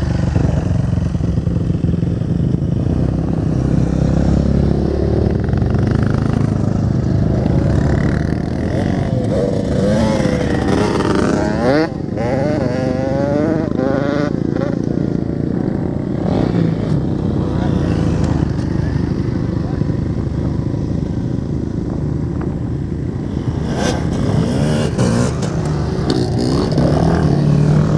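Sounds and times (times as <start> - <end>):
dirt bike engines running: 0.0 - 27.9
engine revving up and down: 7.5 - 14.8, 23.5 - 27.9.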